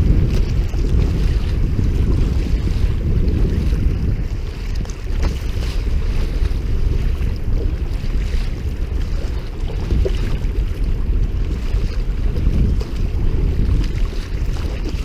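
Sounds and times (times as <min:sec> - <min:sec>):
sea water splashing: 0:00.0 - 0:15.0
wind buffeting microphone: 0:00.0 - 0:15.0.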